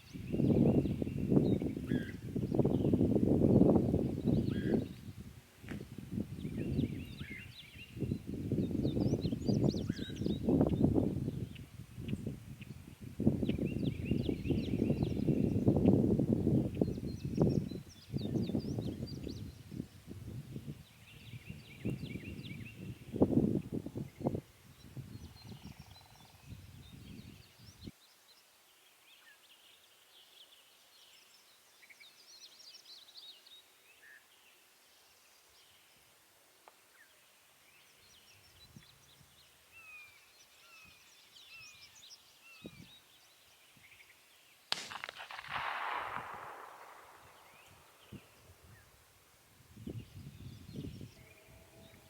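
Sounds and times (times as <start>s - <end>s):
faint songbirds chirping: 0.0s - 52.0s
distant shotgun blast with echo: 44.7s - 48.8s.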